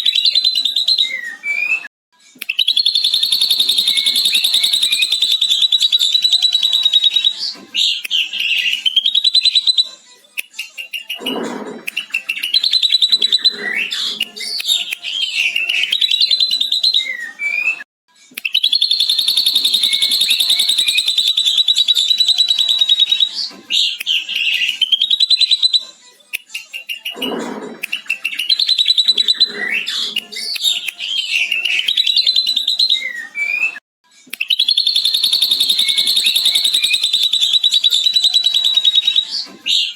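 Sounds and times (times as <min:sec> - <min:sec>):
bird chattering trill: 0:02.7 - 0:07.2, 0:18.6 - 0:23.1, 0:34.6 - 0:39.2.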